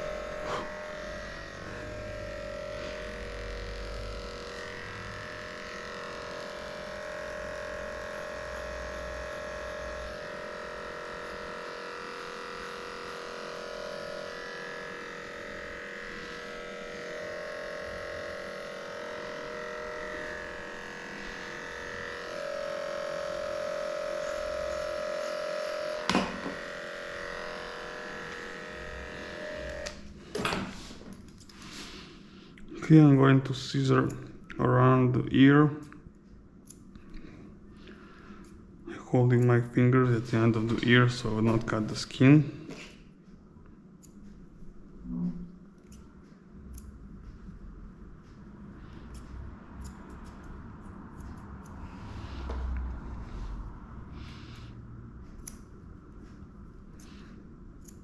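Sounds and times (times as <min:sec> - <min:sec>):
electric clippers humming: 0:00.0 - 0:31.8, 0:48.9 - 0:55.8.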